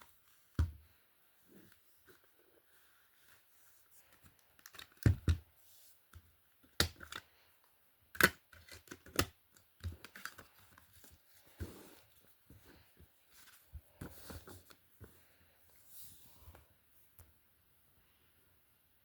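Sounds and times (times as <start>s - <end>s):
packaging handled with clicks and taps: 4.0s - 5.4s, 8.1s - 11.8s.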